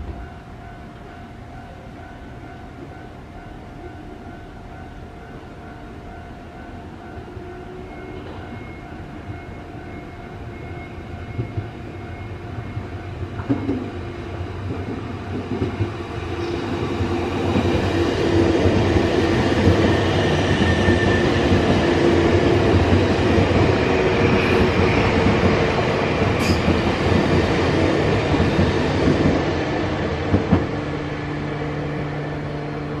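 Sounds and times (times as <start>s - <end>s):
train wheels rumbling on rails: 8.0s - 33.0s.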